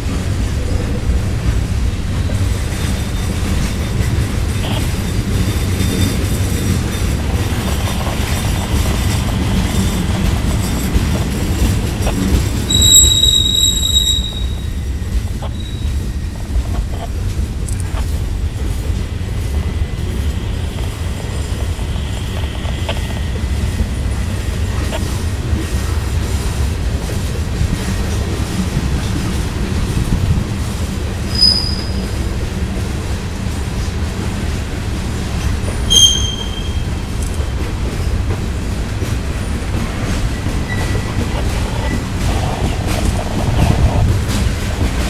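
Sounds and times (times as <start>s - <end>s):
train wheels rumbling on rail: 0.0s - 45.0s
high wheel squeal: 12.6s - 16.4s, 31.2s - 32.2s, 35.9s - 37.6s.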